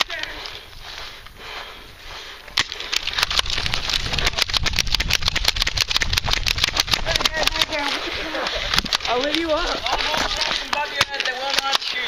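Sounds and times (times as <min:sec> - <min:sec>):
airsoft gun rapid burst: 0:03.3 - 0:09.8.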